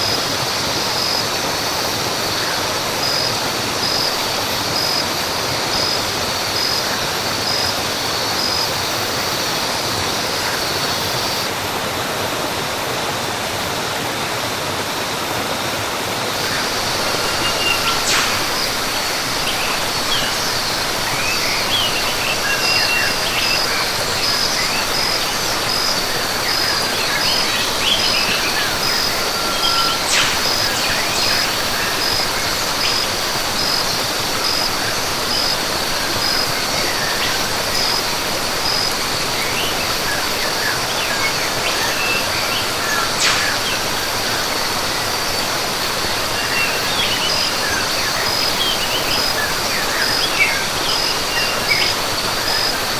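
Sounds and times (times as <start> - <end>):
falling water: 0.0 - 52.9
birds chirping: 16.3 - 52.9
insect pulsed call: 16.3 - 52.9.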